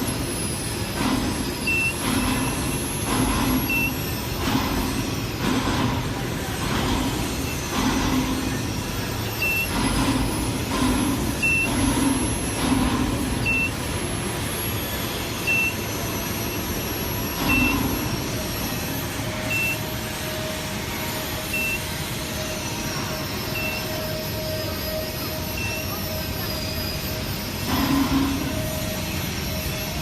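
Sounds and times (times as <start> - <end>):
industrial machinery noise: 0.0 - 30.0
steady hum: 0.0 - 30.0
short high warning beeps: 1.6 - 2.6, 9.4 - 9.8, 11.4 - 11.8, 13.4 - 13.9, 15.4 - 16.7, 17.4 - 18.0, 19.4 - 19.9, 21.4 - 21.9, 23.4 - 26.9.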